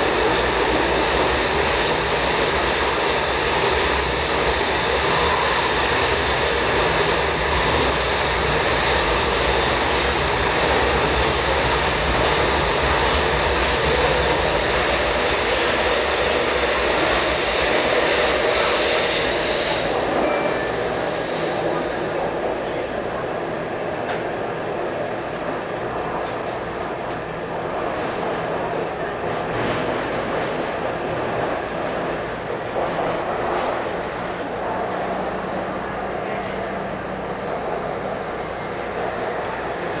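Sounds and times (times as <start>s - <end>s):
thin high whine: 0.0s - 23.1s
train running through tunnel: 0.0s - 40.0s.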